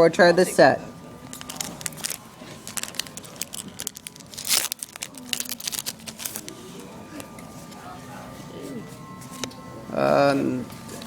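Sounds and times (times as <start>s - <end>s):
foil pack tearing and crinkling: 1.3s - 6.7s.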